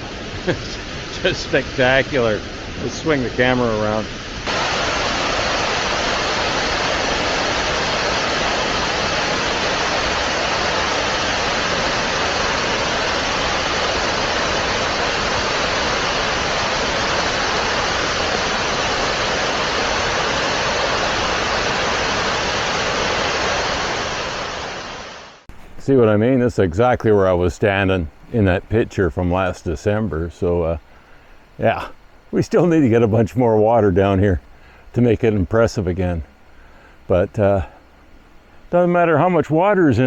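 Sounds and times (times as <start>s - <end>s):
waterfall rushing: 0.0s - 25.5s.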